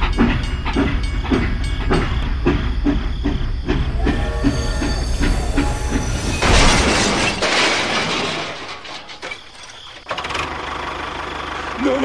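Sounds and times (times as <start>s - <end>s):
loud steam hiss: 3.3s - 7.6s.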